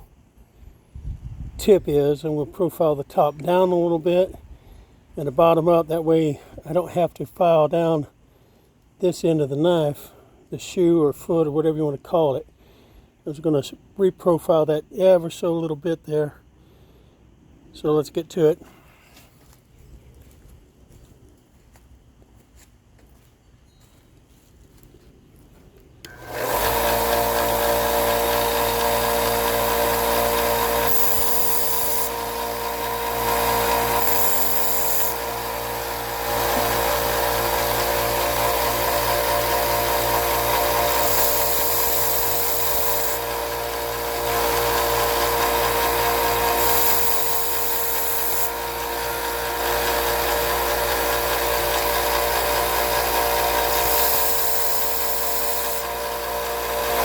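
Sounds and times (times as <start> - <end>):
grinding tool motor hum: 26.0 - 57.0
hissing grind on steel: 26.1 - 38.7, 39.5 - 50.5, 53.6 - 55.9.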